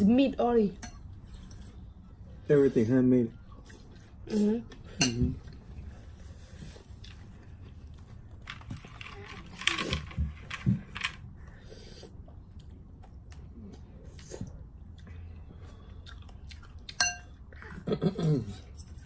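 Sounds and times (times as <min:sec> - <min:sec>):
person chewing: 0:11.9 - 0:17.5.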